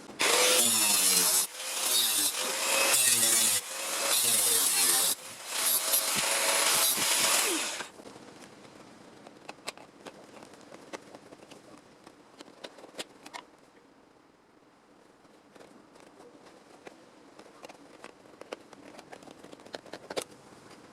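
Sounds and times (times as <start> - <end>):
power tool on sheet metal: 0.1 - 7.9.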